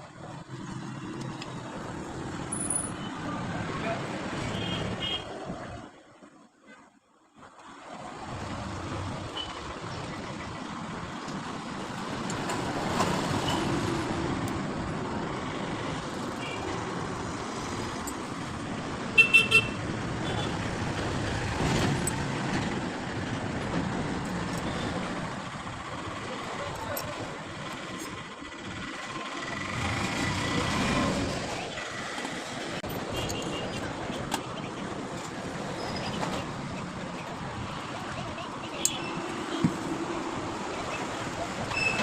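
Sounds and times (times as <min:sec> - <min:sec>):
road traffic noise: 0:00.0 - 0:42.0
vehicle horn beeping: 0:19.2 - 0:20.6.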